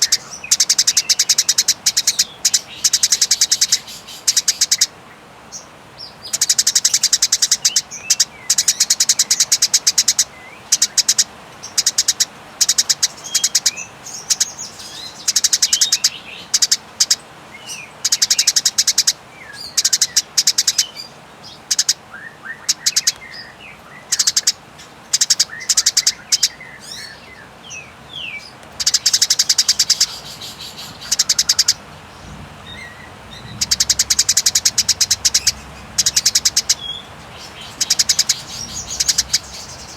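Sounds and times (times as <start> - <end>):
sparrow chirps: 0.0 - 39.9
sparrows rattling trills: 0.0 - 39.9.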